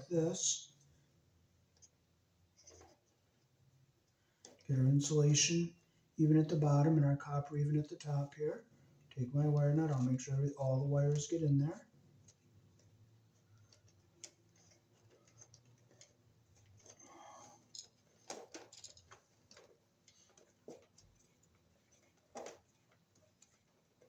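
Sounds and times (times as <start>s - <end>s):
wire nut clicking and scraping: 13.5s - 24.0s.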